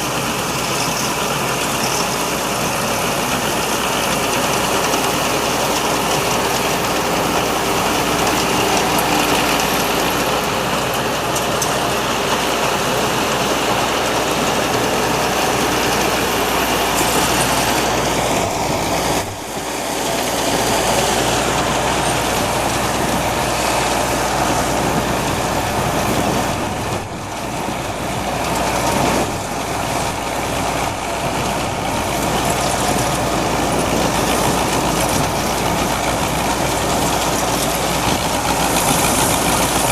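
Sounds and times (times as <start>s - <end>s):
combine harvester diesel engine: 0.0s - 39.9s
machinery clatter: 0.0s - 39.9s.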